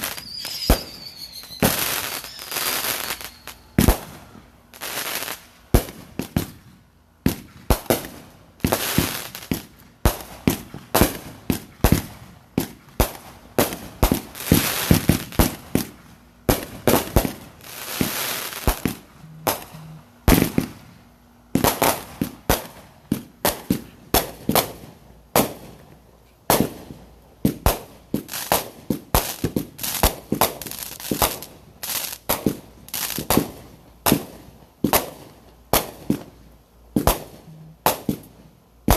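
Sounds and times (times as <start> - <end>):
fireworks bangs: 0.0 - 6.6, 7.2 - 25.8
fireworks hissing crackle: 0.0 - 6.6, 7.3 - 36.4.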